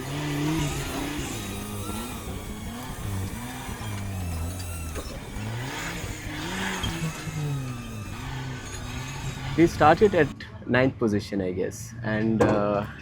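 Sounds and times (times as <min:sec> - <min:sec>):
off-road vehicle engine revving: 0:00.0 - 0:10.4.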